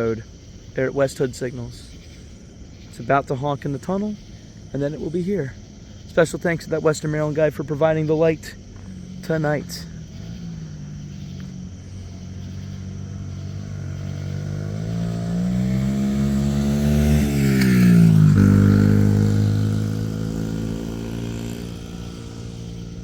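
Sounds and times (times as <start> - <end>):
vehicle engine passing by: 5.1 - 23.0.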